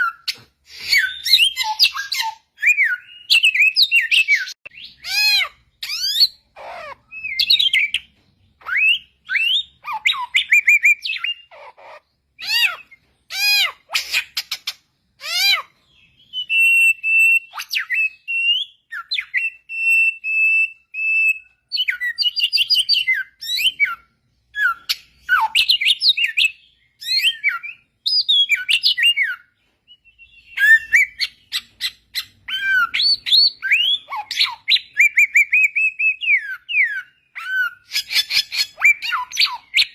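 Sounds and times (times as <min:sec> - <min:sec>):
bird singing whistled phrases: 0:00.0 - 0:06.4, 0:15.3 - 0:39.9.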